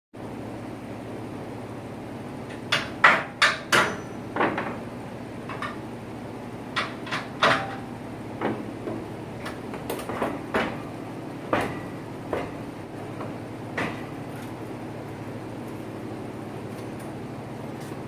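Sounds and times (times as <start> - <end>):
steady low hum: 0.2 - 18.0
metal clanks and knocks: 2.5 - 4.8, 5.5 - 5.8, 6.7 - 12.6.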